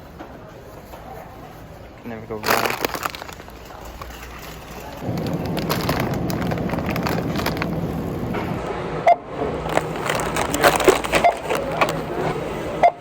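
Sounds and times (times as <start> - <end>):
items rustling and clicking: 0.0 - 8.6, 9.6 - 12.7
hum and murmur: 4.9 - 12.8.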